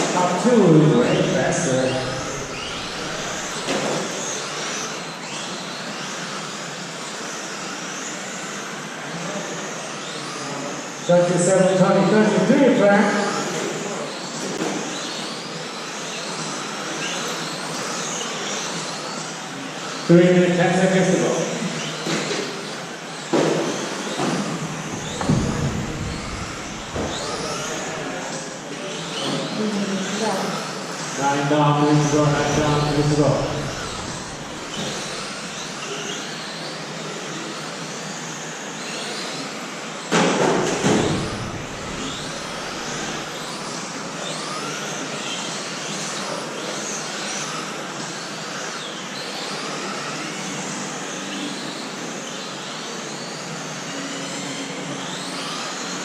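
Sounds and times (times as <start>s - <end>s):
electric motors whining: 0.0s - 56.0s
tyre noise: 24.8s - 28.2s.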